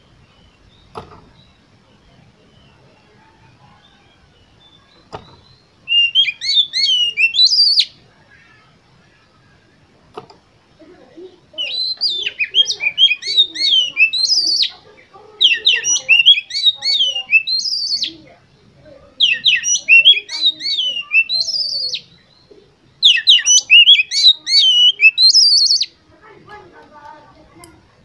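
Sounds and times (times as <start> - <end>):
bird singing whistled phrases: 3.8 - 8.0, 11.6 - 14.8, 15.4 - 18.2, 19.2 - 26.0.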